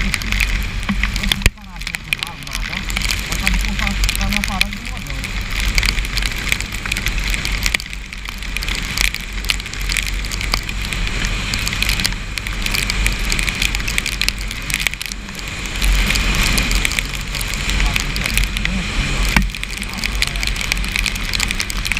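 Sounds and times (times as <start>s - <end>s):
heavy rain pattering: 0.0s - 21.9s
raindrops clicking near microphone: 0.0s - 21.9s
steady low rumble: 0.0s - 21.9s.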